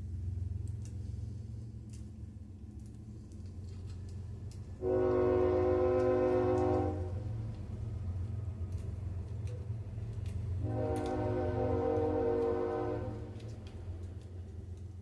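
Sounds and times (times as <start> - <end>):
steady low rumble: 0.0 - 15.0
train horn blasts: 4.8 - 7.4, 10.6 - 13.4.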